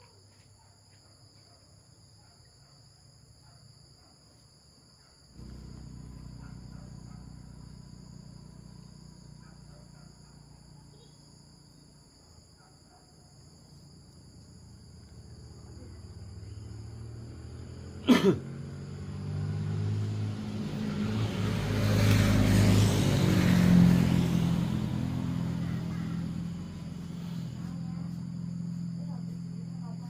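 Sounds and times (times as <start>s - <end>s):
insects buzzing: 1.2s - 30.0s
vehicle engine passing: 5.4s - 11.7s, 14.6s - 30.0s.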